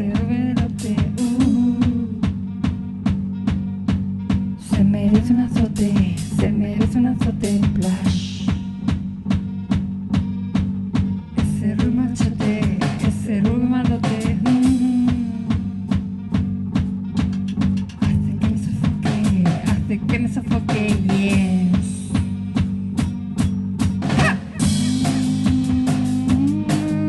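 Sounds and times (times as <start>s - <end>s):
woman singing: 0.0s - 2.5s, 4.6s - 8.8s, 11.4s - 15.8s, 18.0s - 22.3s, 24.3s - 27.0s
drum beat: 0.0s - 27.0s
electric bass line: 0.0s - 27.0s.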